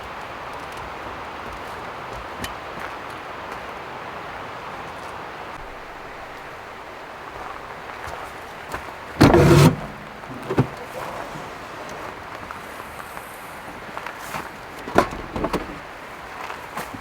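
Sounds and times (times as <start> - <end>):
heavy thud of door shutting: 9.2 - 11.0.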